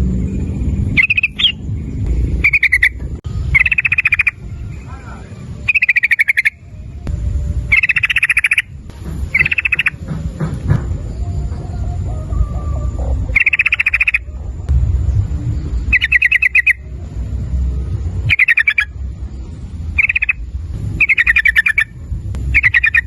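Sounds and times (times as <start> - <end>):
low rumble: 0.0 - 23.0
bird calling in bubbling bursts: 1.0 - 1.6, 2.4 - 4.4, 5.6 - 6.6, 7.7 - 8.7, 9.3 - 10.0, 13.3 - 14.3, 15.9 - 16.8, 18.3 - 18.9, 20.0 - 20.4, 21.0 - 21.9, 22.5 - 23.0.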